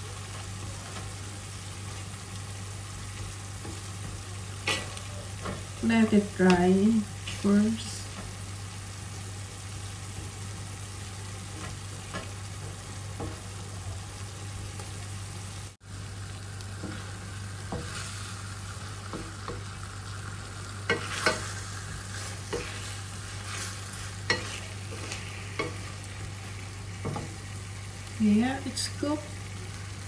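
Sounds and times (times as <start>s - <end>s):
food sizzling in a frying pan: 0.0s - 30.0s
wooden spatula stirring and scraping: 20.8s - 27.6s.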